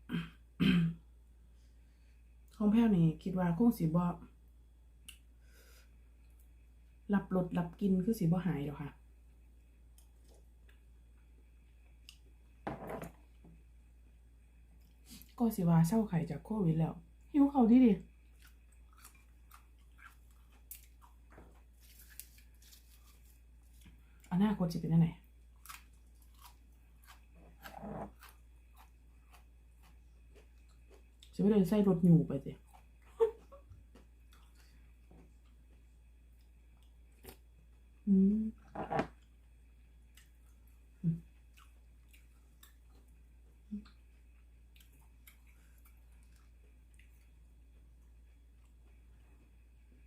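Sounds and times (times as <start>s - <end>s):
person chewing food: 18.2s - 24.3s, 25.4s - 31.4s, 32.6s - 38.0s, 39.1s - 49.1s.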